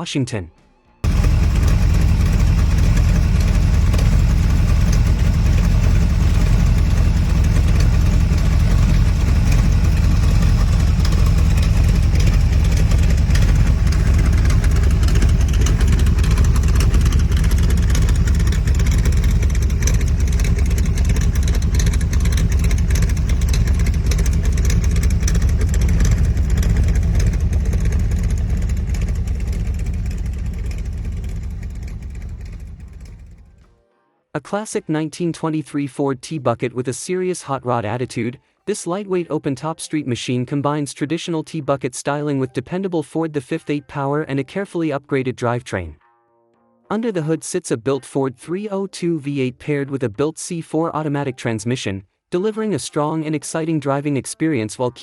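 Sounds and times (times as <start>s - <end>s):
engine running steadily: 1.0s - 33.7s.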